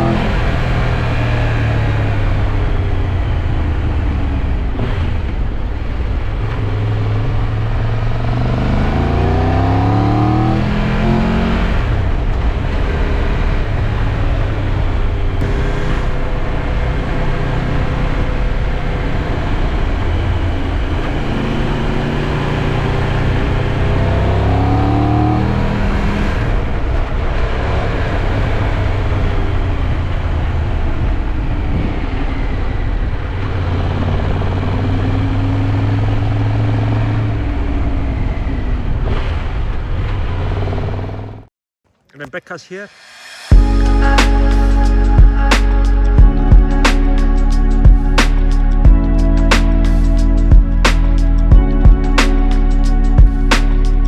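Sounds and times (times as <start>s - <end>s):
motorcycle engine accelerating: 0.0s - 41.5s
wind and road rush: 0.0s - 41.5s.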